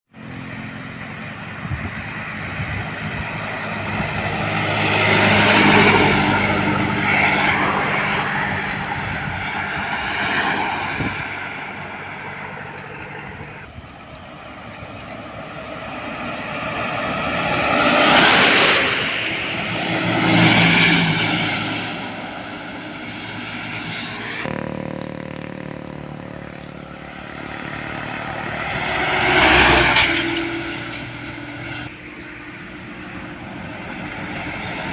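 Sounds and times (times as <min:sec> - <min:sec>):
heavy trucks driving past: 0:00.2 - 0:34.9.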